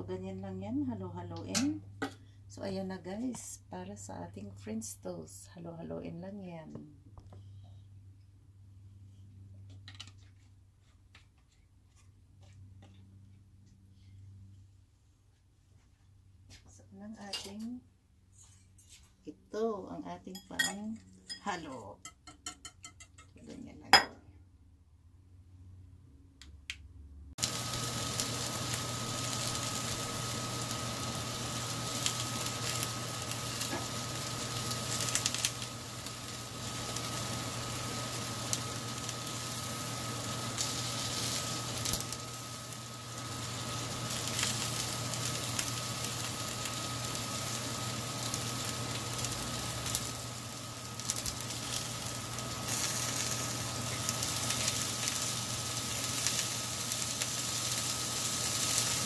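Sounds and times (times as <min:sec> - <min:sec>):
bread sizzling on a griddle: 0:27.4 - 0:59.0.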